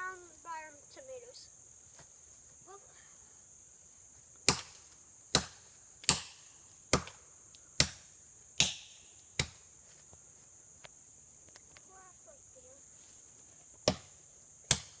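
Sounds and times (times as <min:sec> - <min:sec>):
axe chopping into tree trunk: 0:04.4 - 0:07.2, 0:07.8 - 0:09.6, 0:13.8 - 0:14.1, 0:14.7 - 0:15.0.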